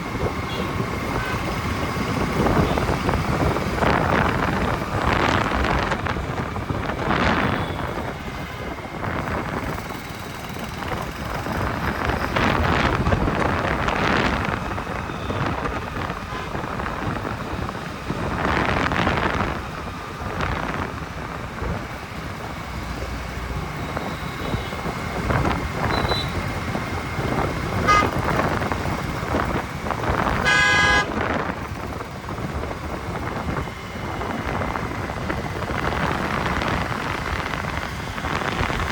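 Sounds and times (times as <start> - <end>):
road and wind noise: 0.0 - 38.9
vehicles passing: 0.0 - 38.9
car horn honking: 16.2 - 16.6, 25.9 - 26.4, 27.8 - 28.4, 30.4 - 31.2.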